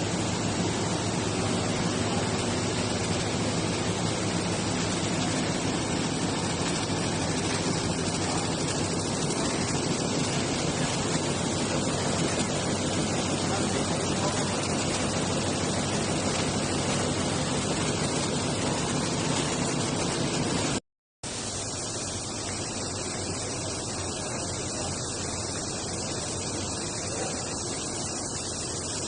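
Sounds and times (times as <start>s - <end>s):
needle loom running: 0.0s - 20.8s.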